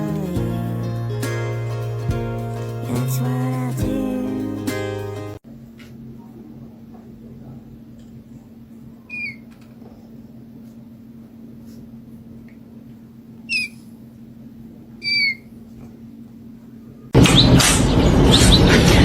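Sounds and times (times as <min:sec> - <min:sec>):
short high squeaks: 0:13.5 - 0:13.8, 0:15.0 - 0:15.5.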